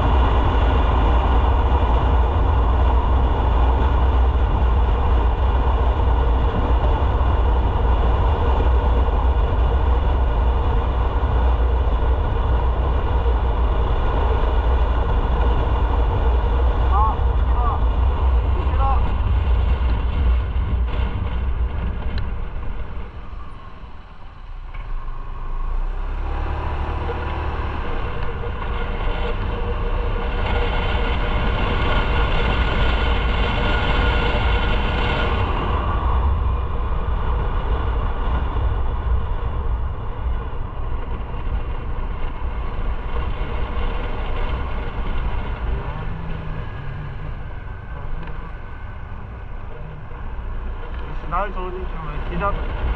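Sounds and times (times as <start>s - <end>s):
motorcycle engine running: 26.6s - 52.9s.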